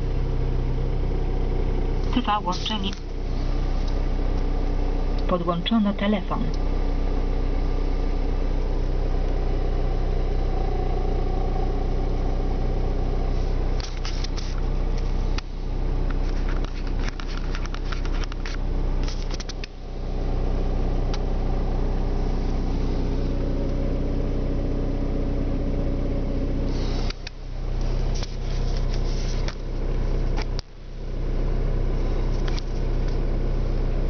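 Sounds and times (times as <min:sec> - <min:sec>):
diesel engine idling: 0:00.0 - 0:34.0
engine clicks and knocks: 0:13.7 - 0:19.8.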